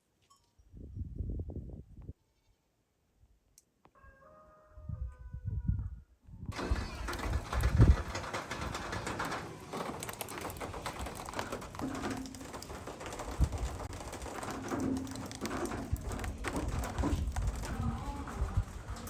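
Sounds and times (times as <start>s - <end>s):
knocks and rustling: 6.5s - 19.0s.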